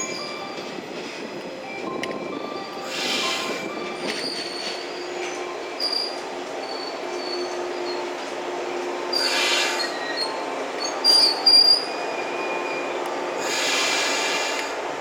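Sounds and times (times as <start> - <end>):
electric train running: 0.0 - 15.0
wheels and brakes squealing: 2.6 - 8.3, 9.1 - 14.6.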